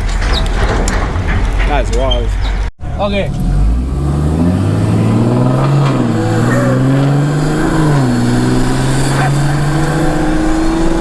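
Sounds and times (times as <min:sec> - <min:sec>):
car engine running: 0:02.8 - 0:11.0.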